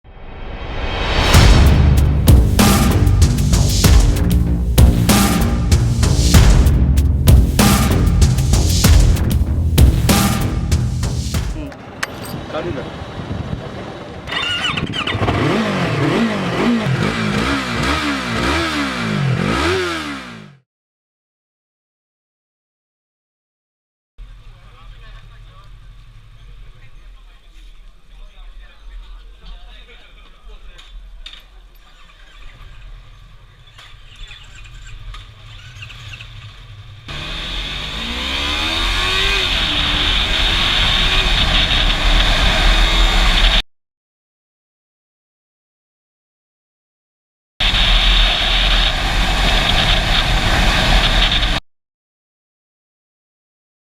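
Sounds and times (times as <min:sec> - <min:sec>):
motorcycle engine revving: 0:07.3 - 0:20.6, 0:32.4 - 0:43.6
heavy wind noise: 0:11.5 - 0:15.4.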